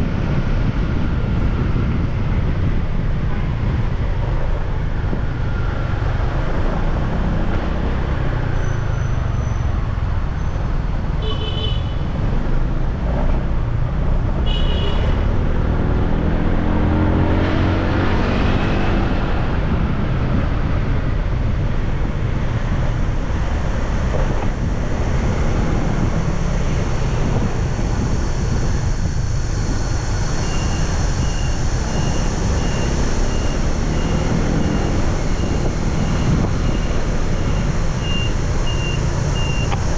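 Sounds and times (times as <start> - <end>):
traffic rumble: 0.0 - 39.9
horn toots: 14.4 - 15.3.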